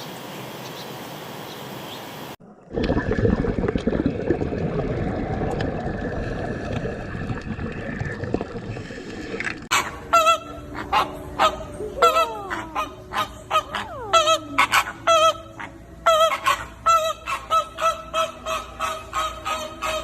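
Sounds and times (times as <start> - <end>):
birds calling: 9.7 - 20.0.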